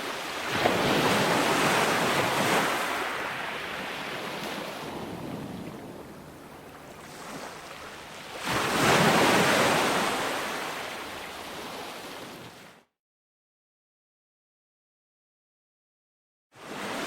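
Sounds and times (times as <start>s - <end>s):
ocean waves breaking: 0.0s - 12.8s, 16.6s - 17.0s.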